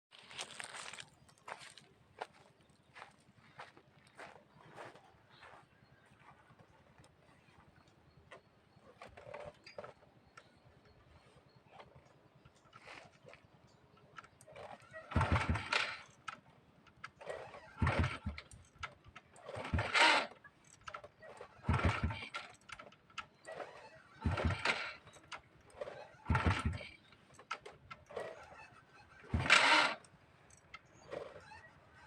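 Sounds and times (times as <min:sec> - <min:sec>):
motorcycle kick-start cranking: 0:07.0 - 0:32.0.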